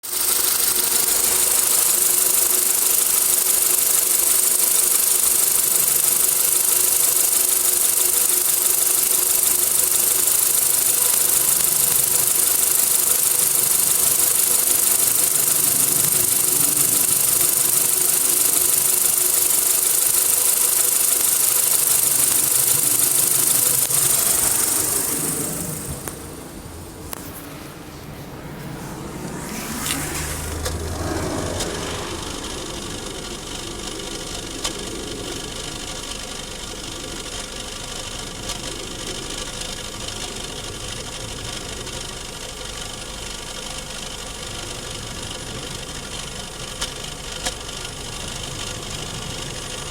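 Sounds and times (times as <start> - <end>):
car engine idling unevenly: 0.0 - 49.9
exhaust sneezing: 23.9 - 35.2.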